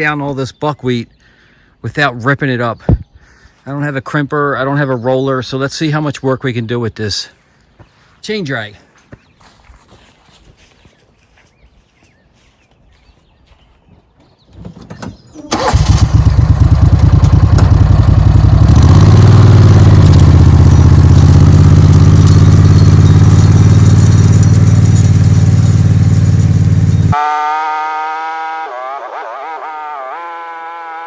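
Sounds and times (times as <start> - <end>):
buggy engine starting and running: 14.6 - 27.3, 28.0 - 31.0.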